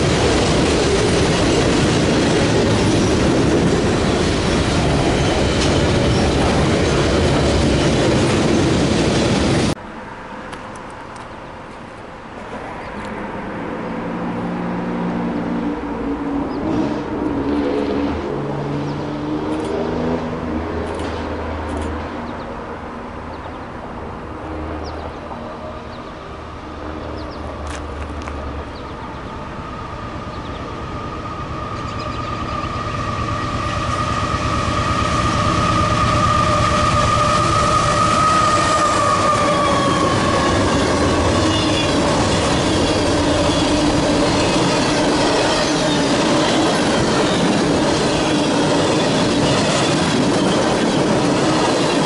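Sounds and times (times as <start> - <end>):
train rumbling past: 0.0 - 52.0.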